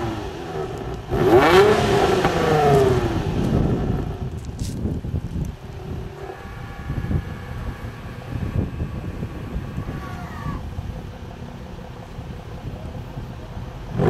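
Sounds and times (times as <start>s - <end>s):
car engine low rumble: 0.0s - 14.0s
faint falling whining tone: 6.5s - 11.6s.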